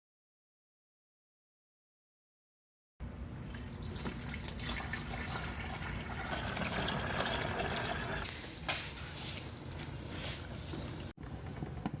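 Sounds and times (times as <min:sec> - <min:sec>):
water filling a container: 0:03.4 - 0:08.3.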